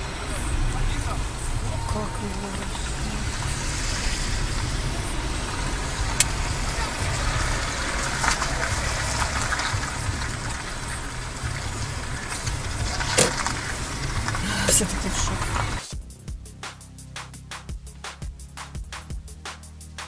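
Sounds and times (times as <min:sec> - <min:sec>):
car engine and tyre rumble: 0:00.0 - 0:15.9
tyres hissing on road: 0:00.0 - 0:16.0.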